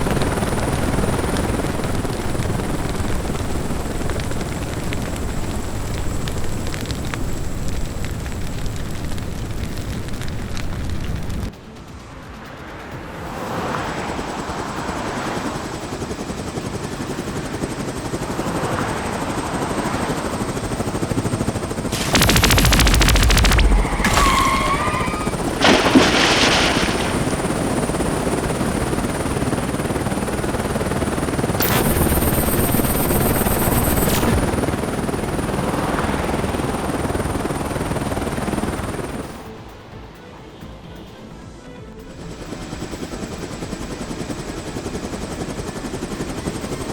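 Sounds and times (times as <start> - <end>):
background music: 11.5 - 18.4, 39.3 - 43.9
cartoon helicopter rotor chop: 13.8 - 39.4
sharp hit: 21.9 - 27.8, 31.6 - 34.6
rapid machine-gun-like burst: 21.9 - 29.0, 31.5 - 35.6.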